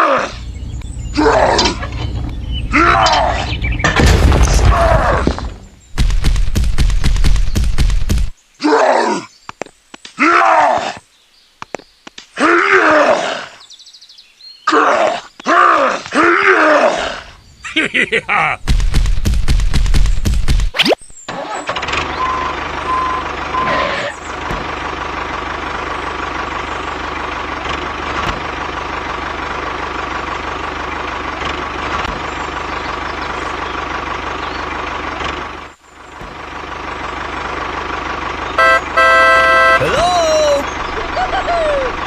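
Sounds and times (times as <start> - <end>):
engine running: 0.0 - 8.3, 21.3 - 42.0.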